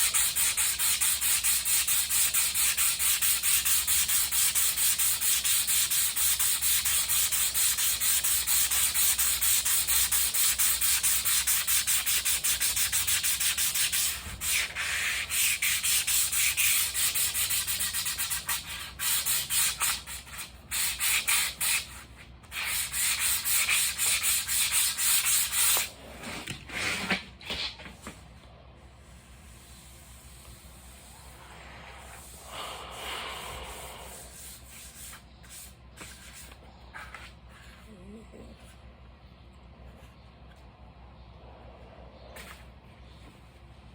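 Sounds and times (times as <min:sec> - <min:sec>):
sandpaper rubbing: 0:00.0 - 0:25.9, 0:33.7 - 0:37.8.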